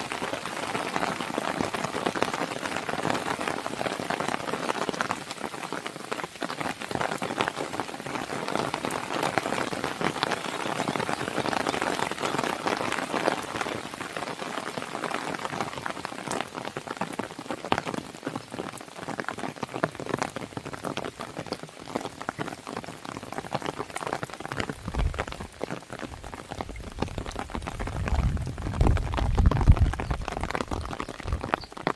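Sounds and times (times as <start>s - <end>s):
rain on a window: 0.0s - 31.9s
wood fire crackling: 24.4s - 31.9s.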